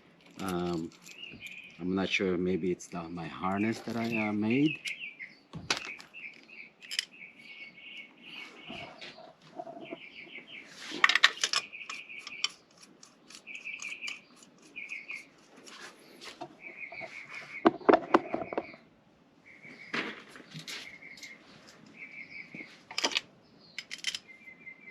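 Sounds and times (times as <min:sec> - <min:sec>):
metallic clinking and clatter: 0:00.2 - 0:01.8, 0:05.7 - 0:07.2, 0:23.8 - 0:24.3
bird chirping trilled phrases: 0:00.4 - 0:18.8, 0:20.8 - 0:22.8, 0:23.4 - 0:24.9.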